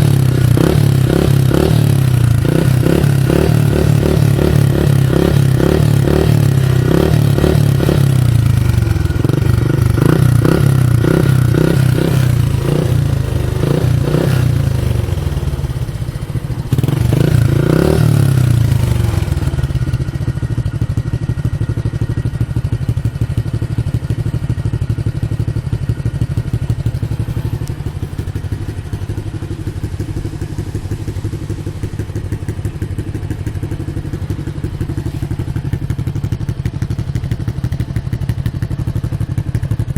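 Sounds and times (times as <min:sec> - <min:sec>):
two-stroke motorcycle engine revving: 0:00.0 - 0:39.9.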